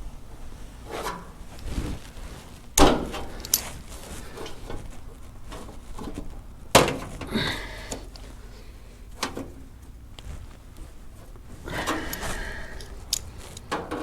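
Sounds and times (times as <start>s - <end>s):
sheet metal clicking and clattering: 11.8s - 14.0s.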